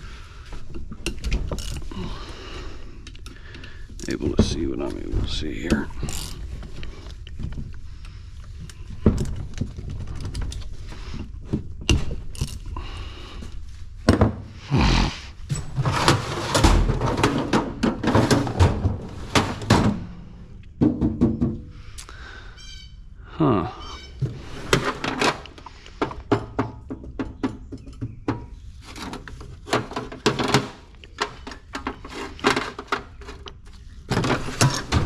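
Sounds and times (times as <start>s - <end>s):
metal parts rattling: 5.9s - 6.9s, 15.4s - 20.6s, 24.5s - 25.7s, 29.0s - 35.0s.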